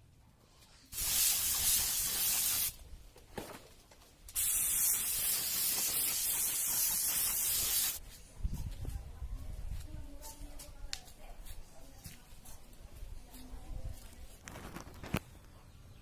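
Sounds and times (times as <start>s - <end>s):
paint spraying hiss: 0.7s - 2.8s, 4.3s - 8.0s.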